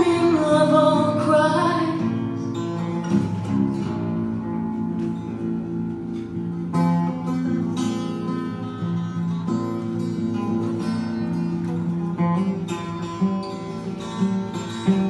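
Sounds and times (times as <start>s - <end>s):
person singing: 0.0s - 2.0s
guitar plucking over chords: 0.0s - 15.0s.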